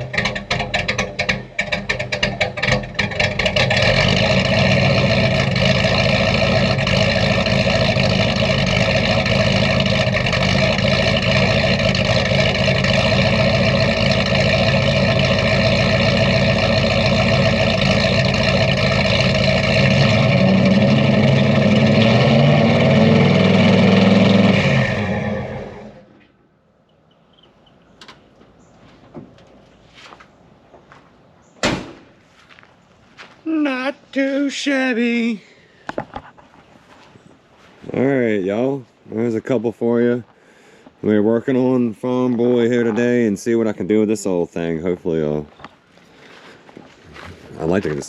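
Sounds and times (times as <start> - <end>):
engine running: 0.0 - 26.5, 41.0 - 48.0.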